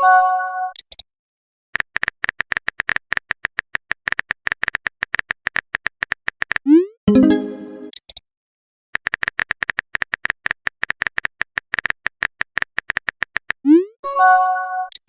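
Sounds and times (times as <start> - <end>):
message chime: 7.1 - 7.9
keyboard typing clicks: 9.0 - 13.6.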